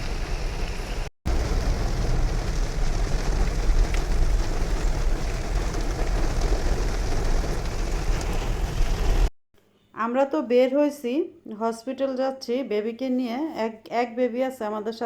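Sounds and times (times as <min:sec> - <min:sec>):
heavy rain: 0:00.0 - 0:09.3.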